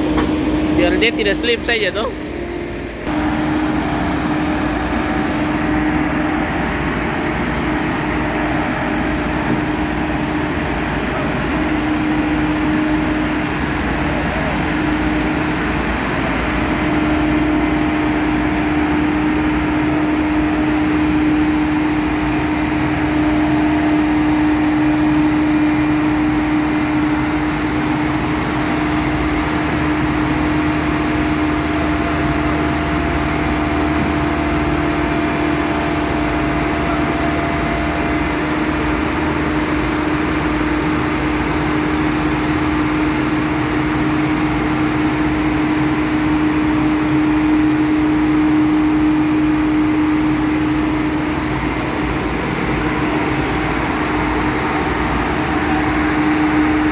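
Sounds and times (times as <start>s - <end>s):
diesel roller engine humming: 0.0s - 56.9s.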